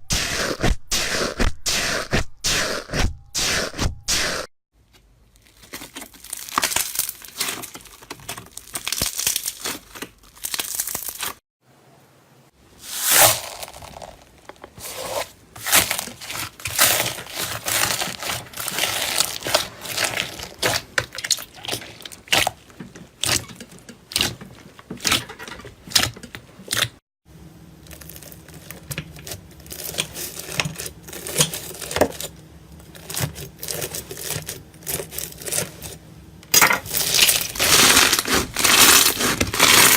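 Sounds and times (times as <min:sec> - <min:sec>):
slime crackling and crunching: 0:05.3 - 0:11.4, 0:12.8 - 0:25.2, 0:27.8 - 0:36.0, 0:36.8 - 0:39.9.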